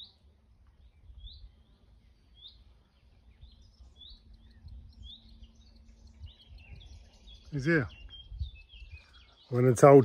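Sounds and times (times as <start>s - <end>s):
faint low rumble: 0.0s - 9.2s
small bird chirping: 0.0s - 10.0s.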